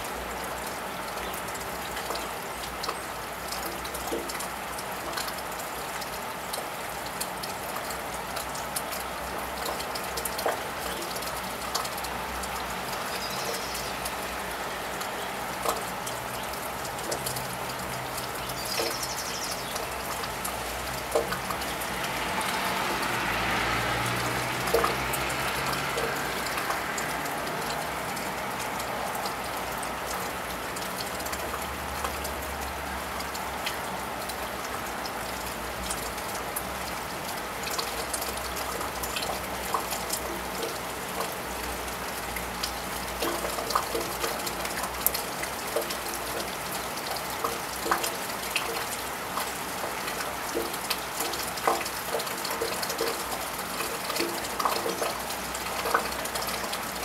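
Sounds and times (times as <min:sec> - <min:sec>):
drips ticking: 0:00.0 - 0:57.0
steady rain: 0:00.0 - 0:57.0
car tyres swishing on wet road: 0:20.5 - 0:29.9.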